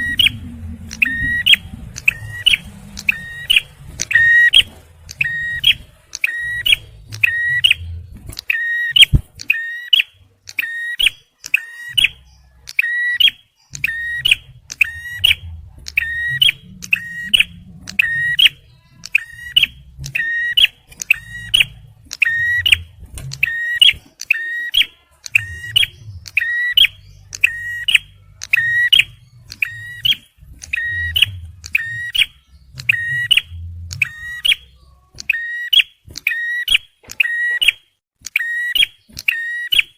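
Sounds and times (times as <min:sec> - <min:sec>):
faint low rumble: 0:00.0 - 0:09.5, 0:13.6 - 0:24.2, 0:25.2 - 0:35.2.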